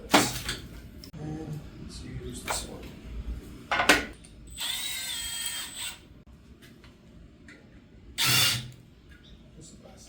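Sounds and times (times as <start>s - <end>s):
power drill whining: 4.5s - 6.0s, 8.2s - 8.8s.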